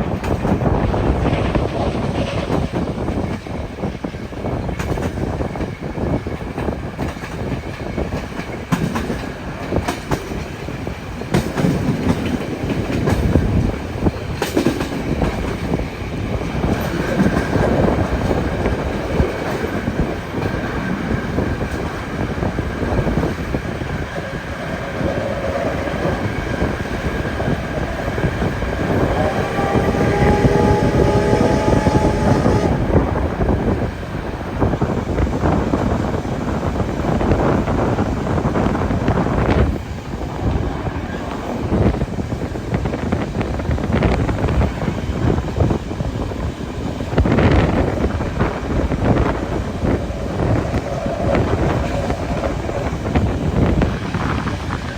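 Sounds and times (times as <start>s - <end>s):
train wheels clattering on rails: 0.0s - 54.9s
faint horn-like tone: 29.0s - 33.0s.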